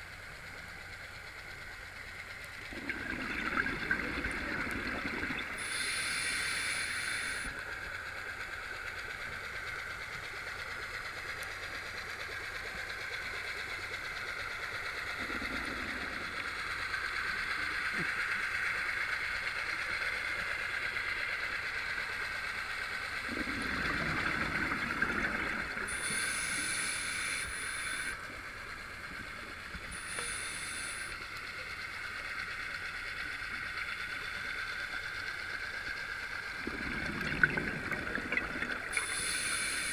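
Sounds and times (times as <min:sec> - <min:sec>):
bubbles: 0:02.7 - 0:05.7, 0:23.2 - 0:26.0, 0:36.6 - 0:39.9
low underwater bubbling: 0:02.7 - 0:05.7, 0:23.2 - 0:26.1, 0:36.6 - 0:39.4
underwater hiss: 0:02.7 - 0:07.7, 0:14.8 - 0:39.9
diver regulator breathing: 0:05.1 - 0:07.6, 0:23.3 - 0:28.4, 0:29.4 - 0:31.7, 0:36.6 - 0:39.9.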